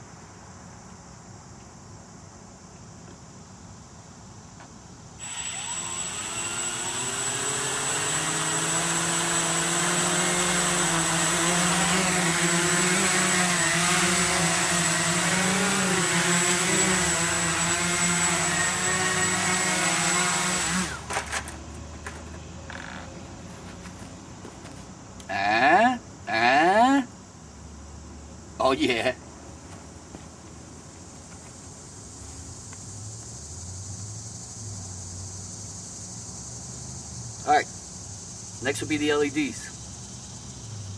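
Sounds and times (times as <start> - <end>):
drone motors whirring: 5.2 - 23.0.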